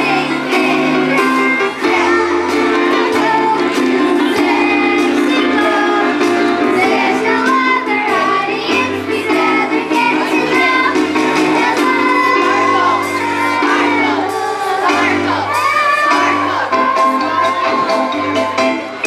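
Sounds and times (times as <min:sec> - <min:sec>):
children's chorus singing: 0:00.0 - 0:19.0
instrumental accompaniment: 0:00.0 - 0:19.0.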